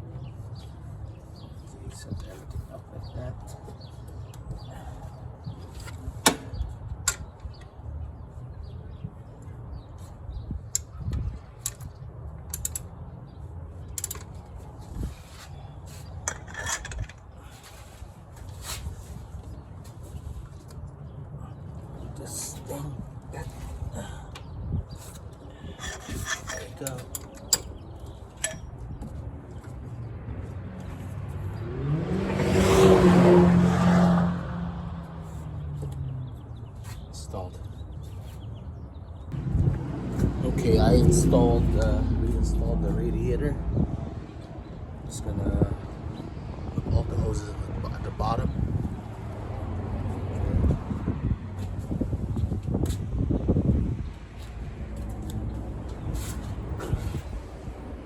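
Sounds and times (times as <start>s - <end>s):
metallic clicks and clanks: 28.4s - 28.8s
vehicle passing by: 29.6s - 36.6s, 39.4s - 58.0s.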